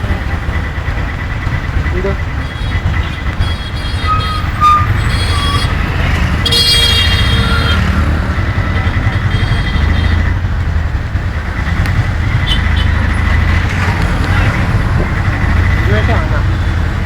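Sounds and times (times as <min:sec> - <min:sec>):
vehicle engines running: 0:00.0 - 0:17.0
car horn: 0:02.4 - 0:10.4, 0:12.2 - 0:17.0.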